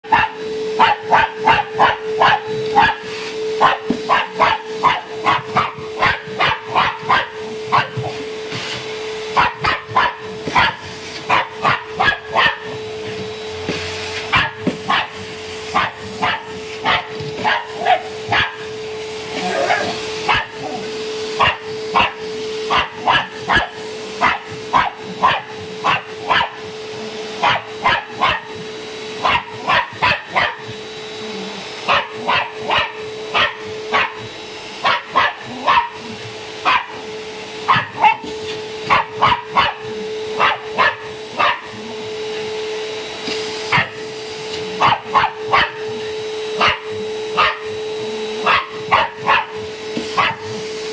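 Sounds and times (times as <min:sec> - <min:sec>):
dog barking: 0:00.0 - 0:08.2, 0:09.3 - 0:13.2, 0:14.2 - 0:18.8, 0:19.4 - 0:30.8, 0:31.8 - 0:42.1, 0:43.6 - 0:44.0, 0:44.7 - 0:50.8
vacuum cleaner motor hum: 0:00.0 - 0:50.9.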